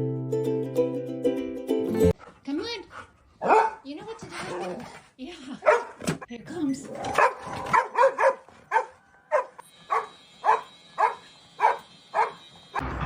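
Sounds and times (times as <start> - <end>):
dog barking: 3.4 - 3.9, 5.6 - 6.0, 7.1 - 12.4.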